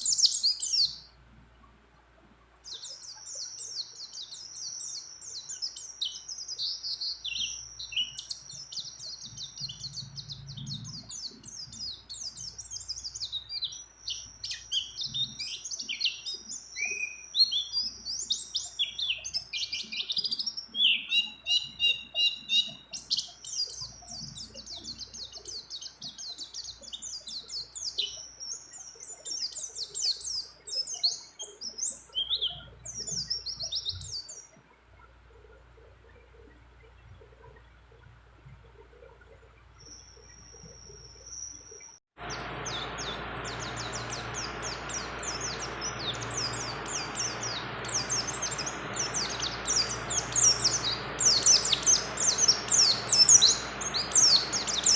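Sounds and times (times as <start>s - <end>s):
bird singing high chirps and trills: 0.0s - 1.2s, 2.5s - 54.9s.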